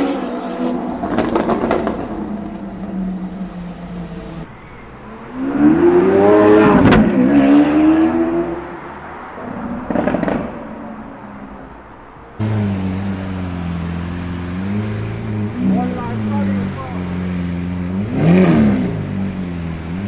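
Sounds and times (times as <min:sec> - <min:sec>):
engine revving burst: 0:12.4 - 0:19.1
sports car engine accelerating: 0:12.4 - 0:20.0.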